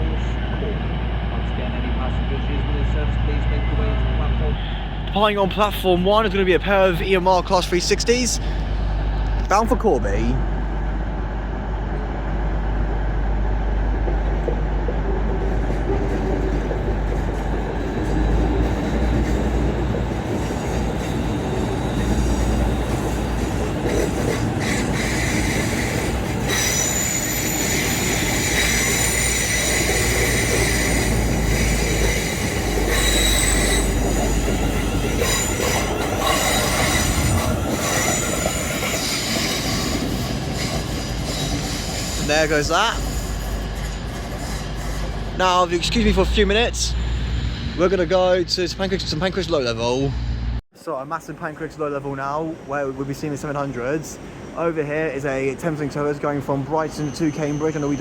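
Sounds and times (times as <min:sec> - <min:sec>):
electric train running: 0:12.0 - 0:47.5
high-pitched wheel squeal: 0:17.7 - 0:48.1, 0:56.8 - 0:58.0.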